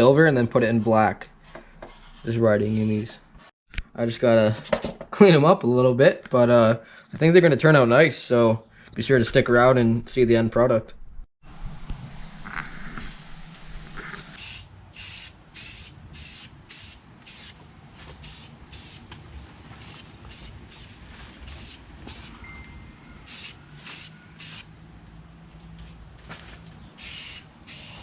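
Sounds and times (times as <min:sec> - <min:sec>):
spray can hissing bursts: 0:14.4 - 0:17.6, 0:18.2 - 0:19.1, 0:19.8 - 0:22.4, 0:23.3 - 0:24.7, 0:27.0 - 0:28.0.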